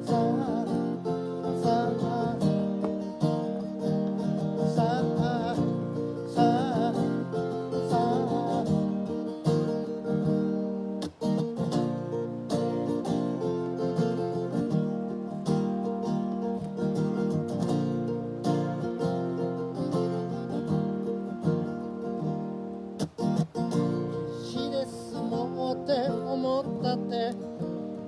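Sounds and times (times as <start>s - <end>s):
person singing wordlessly: 0.0s - 9.6s, 24.2s - 28.0s
acoustic guitar strumming: 0.0s - 28.0s.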